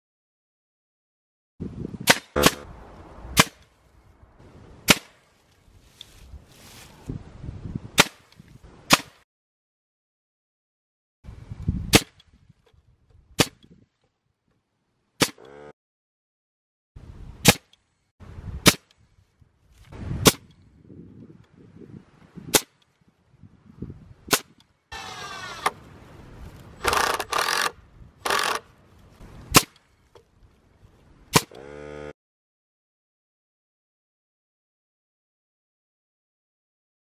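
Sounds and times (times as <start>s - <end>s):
nail gun shots: 2.0s - 2.7s, 8.9s - 9.2s, 13.4s - 13.6s, 15.2s - 15.7s, 17.4s - 17.8s, 26.8s - 28.6s, 31.3s - 31.8s.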